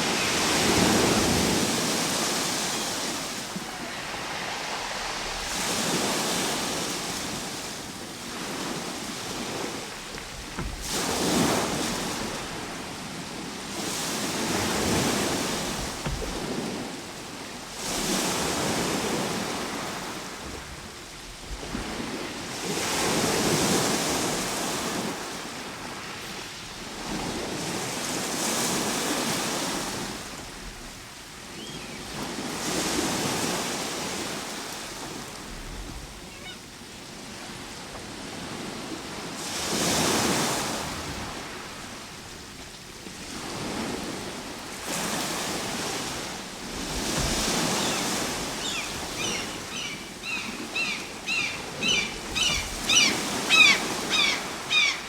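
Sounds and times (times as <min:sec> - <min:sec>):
ocean waves washing in: 0:00.0 - 0:55.0.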